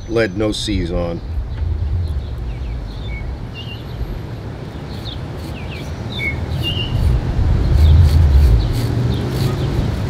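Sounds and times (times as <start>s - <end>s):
low rumble: 0.0s - 4.9s
small birds chirping: 0.0s - 10.0s.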